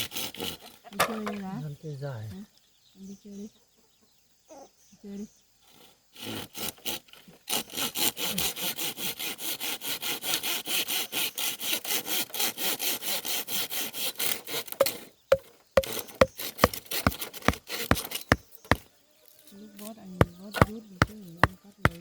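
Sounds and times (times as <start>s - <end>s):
hand saw cutting bamboo: 0.0s - 0.9s, 5.7s - 18.9s, 20.2s - 22.0s
sharp chopping knocks: 14.8s - 18.9s, 20.2s - 22.0s.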